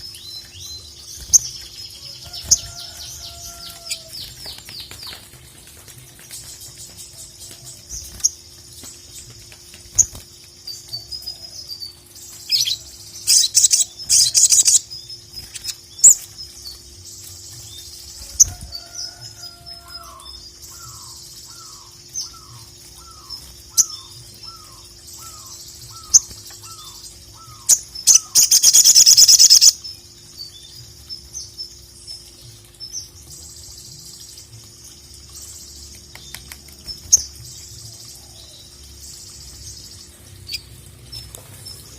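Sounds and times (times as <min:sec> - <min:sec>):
sharp high bird chips and calls: 0:09.9 - 0:16.8, 0:17.4 - 0:29.9.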